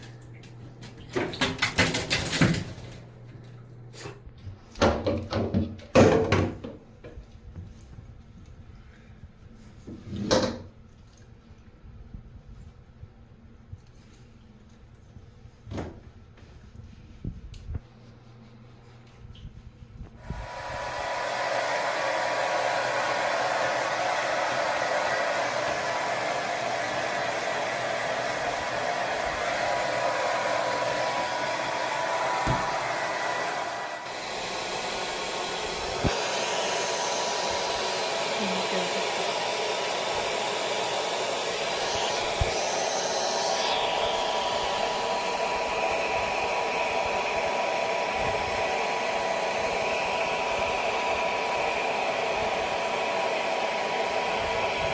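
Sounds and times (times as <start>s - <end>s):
hair dryer running: 20.2s - 54.9s.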